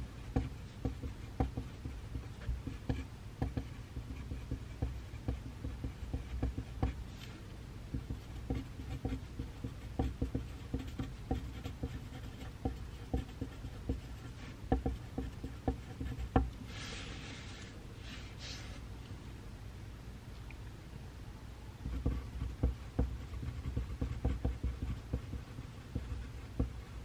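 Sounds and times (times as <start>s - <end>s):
pencil writing on paper: 0.2s - 7.1s, 7.9s - 16.5s, 21.8s - 27.0s.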